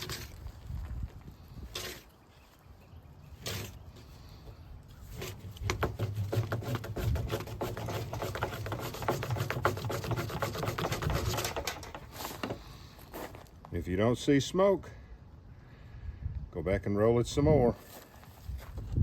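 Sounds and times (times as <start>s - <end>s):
rubbing strokes and clicks: 5.0s - 13.5s.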